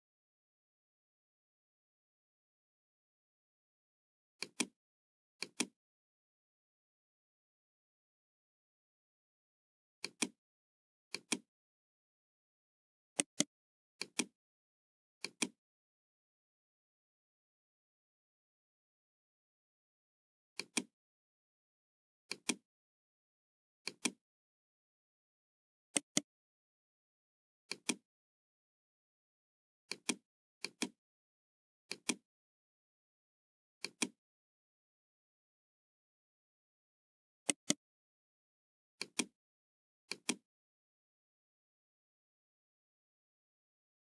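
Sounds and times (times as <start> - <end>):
computer mouse clicking: 4.4 - 4.8, 5.4 - 5.8, 10.0 - 10.4, 13.2 - 14.3, 15.2 - 15.6, 26.0 - 26.2, 29.9 - 31.0, 31.9 - 32.2, 33.8 - 34.2, 37.5 - 37.8, 39.0 - 39.3, 40.1 - 40.4.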